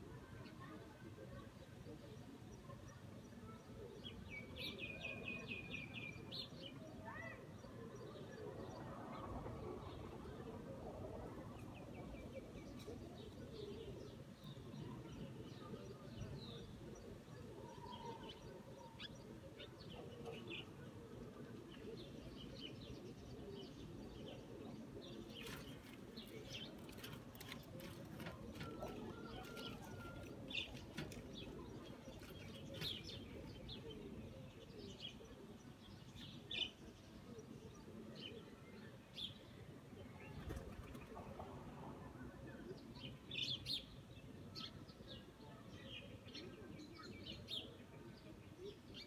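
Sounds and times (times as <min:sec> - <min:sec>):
small birds chirping: 0:11.8 - 0:39.4.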